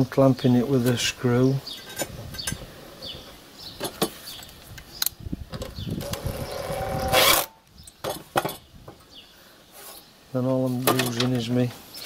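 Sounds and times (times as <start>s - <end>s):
tool handling clicks and knocks: 3.8s - 6.2s, 7.9s - 9.0s, 10.8s - 11.4s
impact driver motor whining: 6.0s - 7.5s.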